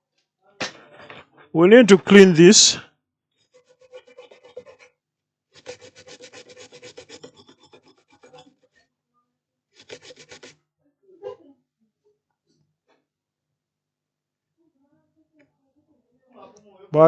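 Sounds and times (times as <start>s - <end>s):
brush scrubbing circuit board: 5.6s - 8.6s.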